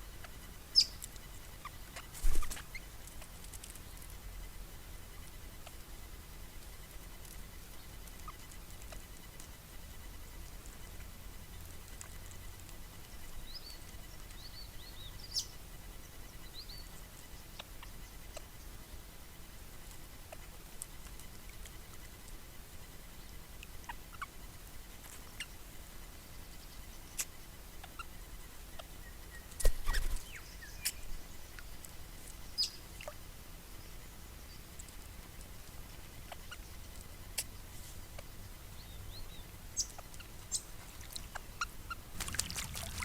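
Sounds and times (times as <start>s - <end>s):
birds chirping: 0.0s - 4.1s, 13.1s - 19.5s, 22.9s - 43.0s
wings flapping: 2.0s - 2.7s, 29.6s - 30.3s, 42.1s - 43.0s
water splashing: 42.2s - 43.0s.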